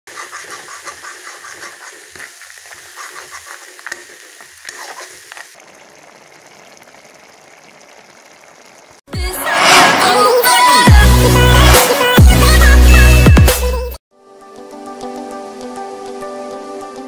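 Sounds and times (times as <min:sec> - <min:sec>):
spatula scraping a pan: 0:00.1 - 0:05.5
curry sizzling in a pan: 0:00.1 - 0:09.1.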